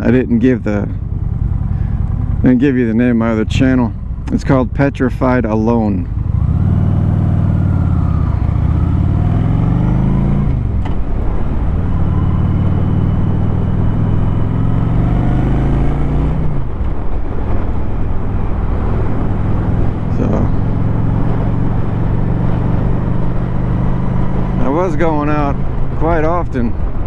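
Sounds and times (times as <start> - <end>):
motorcycle engine accelerating: 0.0 - 27.0
wind rush: 6.0 - 27.0.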